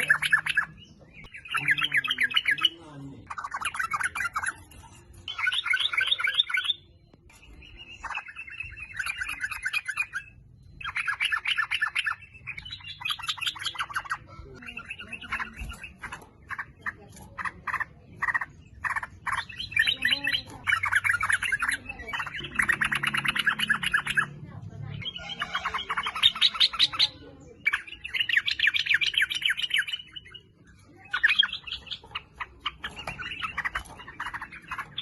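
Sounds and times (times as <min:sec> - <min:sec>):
bulbul chattering song: 0:00.0 - 0:35.0.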